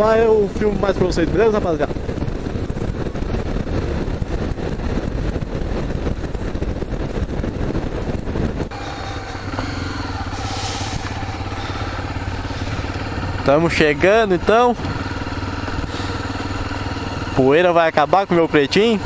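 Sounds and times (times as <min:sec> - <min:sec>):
motorcycle engine running: 0:00.0 - 0:19.0
air noise rushing: 0:02.1 - 0:16.9.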